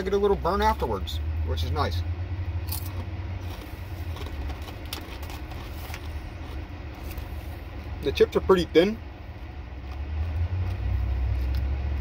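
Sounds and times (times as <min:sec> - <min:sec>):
steady low hum: 0:00.0 - 0:12.0
potato chips being chewed: 0:02.7 - 0:07.9, 0:09.3 - 0:12.0
chip bag rustling: 0:02.8 - 0:07.4.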